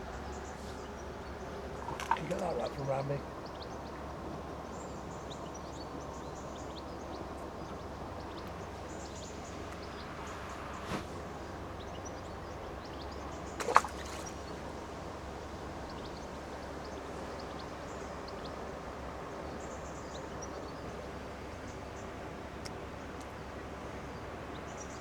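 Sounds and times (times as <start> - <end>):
constant hiss: 0.0 - 25.0.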